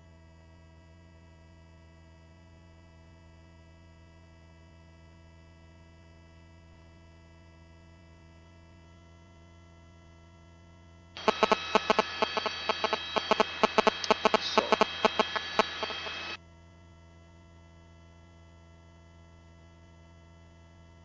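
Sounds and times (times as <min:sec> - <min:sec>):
crackling intercom noise: 0:11.2 - 0:16.4
faint electrical hum: 0:11.2 - 0:16.4.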